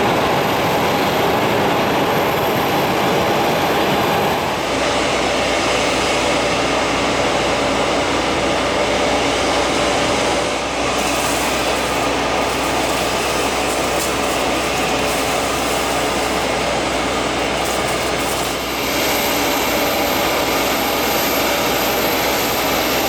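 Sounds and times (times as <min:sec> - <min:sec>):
jet engines roaring: 0:00.0 - 0:23.0
high thin whine: 0:10.5 - 0:23.0.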